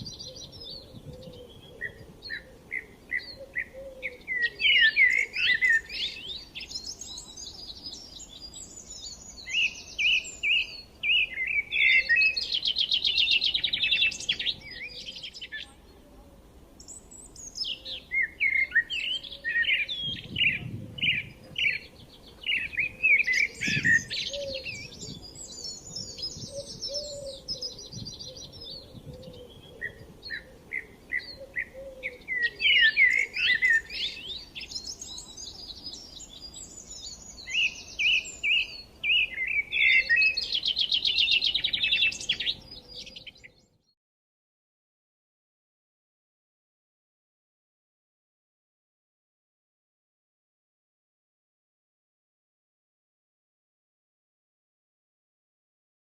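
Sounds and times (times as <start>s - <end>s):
small bird singing: 0.0s - 16.0s, 16.8s - 44.0s.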